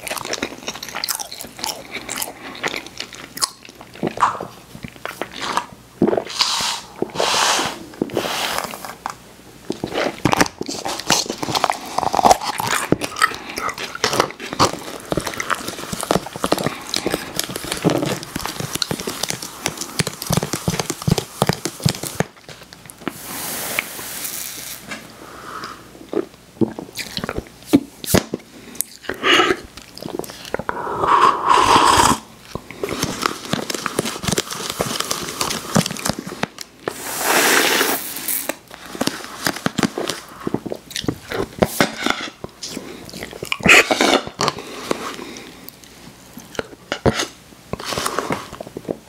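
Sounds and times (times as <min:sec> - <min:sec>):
person chewing crunchy food: 0:00.0 - 0:23.3, 0:25.6 - 0:37.0, 0:37.6 - 0:49.0
short hissing rustle: 0:23.1 - 0:25.0, 0:37.0 - 0:38.5
wet mouth clicks: 0:28.8 - 0:32.3.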